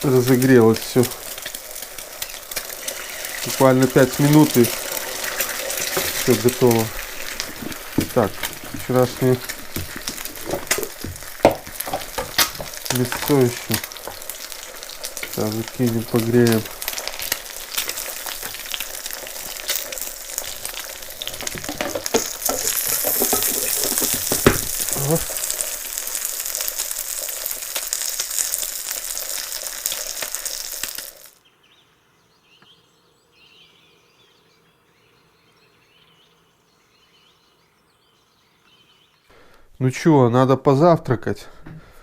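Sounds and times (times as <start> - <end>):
food sizzling in a pan: 0.0 - 31.4
faint background sound: 0.0 - 42.0
utensil knock: 9.7 - 13.3, 21.4 - 24.8.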